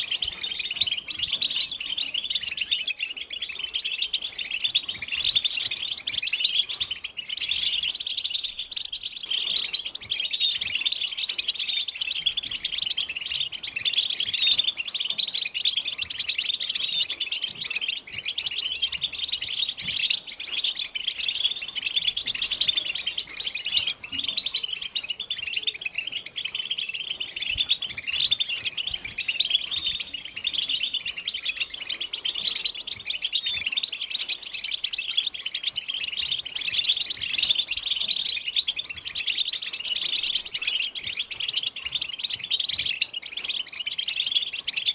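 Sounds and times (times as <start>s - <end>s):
goldfinches chattering and singing: 0.0s - 44.9s.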